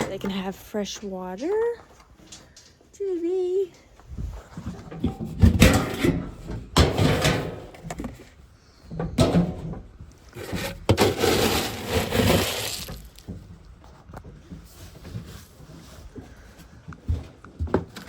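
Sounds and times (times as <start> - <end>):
knocking and scraping rustle: 4.0 - 18.0.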